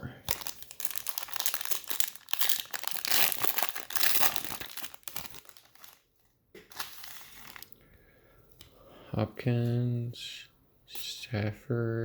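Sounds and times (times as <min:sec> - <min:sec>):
wrapper tearing and crinkling: 0:00.3 - 0:06.1, 0:06.7 - 0:07.8.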